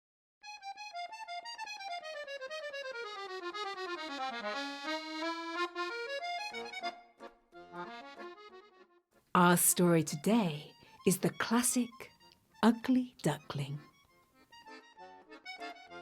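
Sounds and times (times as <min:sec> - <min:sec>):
accordion playing quick notes: 0:00.5 - 0:08.9, 0:13.4 - 0:16.0.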